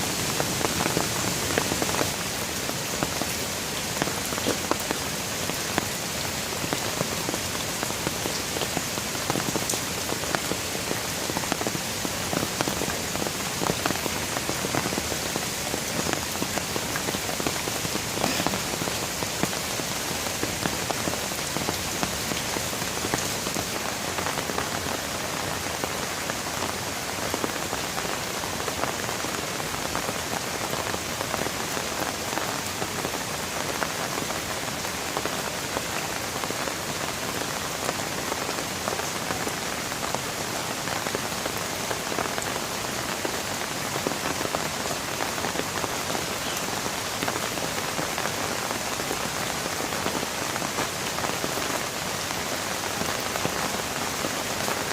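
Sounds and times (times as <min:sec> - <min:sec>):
rain drops on hard surface: 0:00.0 - 0:54.9.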